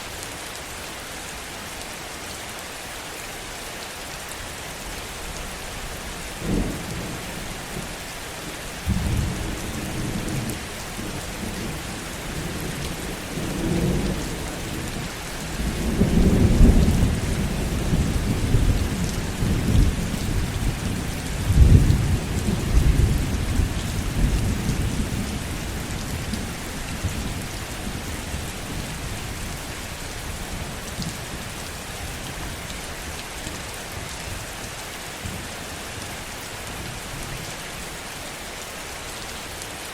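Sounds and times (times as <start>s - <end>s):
heavy rain falling: 0.0s - 39.9s
thunder rumbling: 8.8s - 31.6s.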